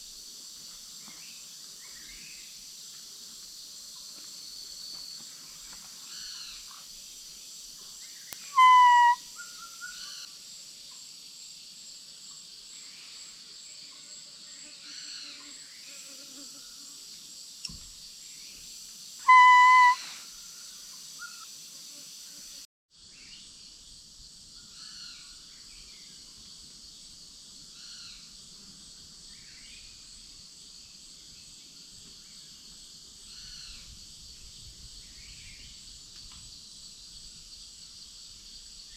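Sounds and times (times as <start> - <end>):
insects chirping: 0.0 - 38.9
birds chirping: 8.4 - 9.2, 19.3 - 20.2
bamboo deer call whistle: 8.4 - 10.1, 19.2 - 20.3.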